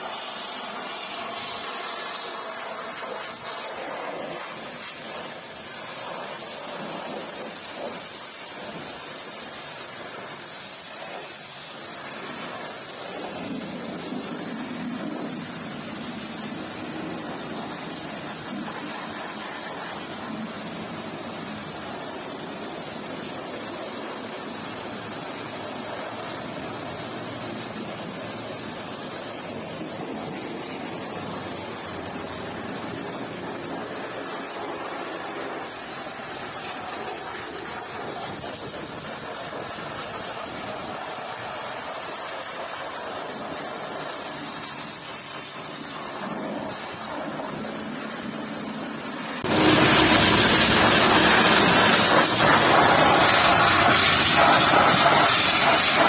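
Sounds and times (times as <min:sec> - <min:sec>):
pressure washer spraying water: 0:00.0 - 0:56.0.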